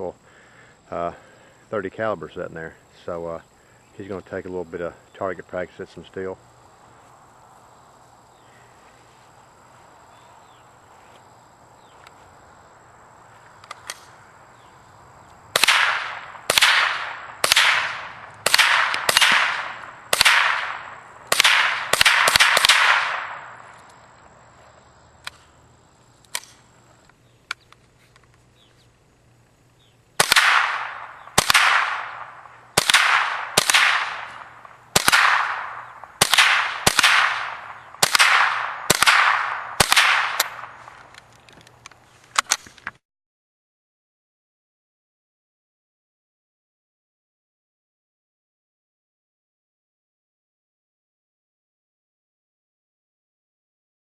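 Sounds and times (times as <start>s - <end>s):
rifle shots: 15.5s - 23.7s, 30.2s - 40.9s.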